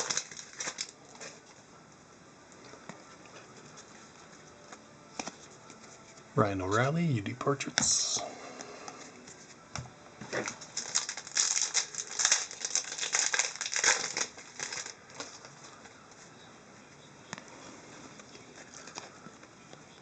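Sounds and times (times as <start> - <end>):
wrappers crinkling and rustling: 0.0 - 1.6, 10.2 - 16.4.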